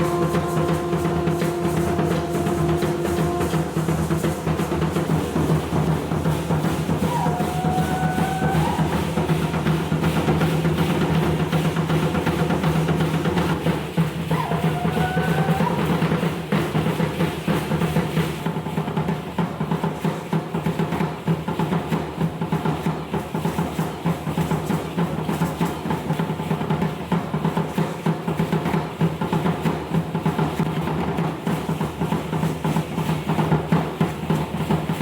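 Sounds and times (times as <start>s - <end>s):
sliding melody notes: 0.0s - 4.7s
rapid drumming on drum kit: 0.0s - 35.0s.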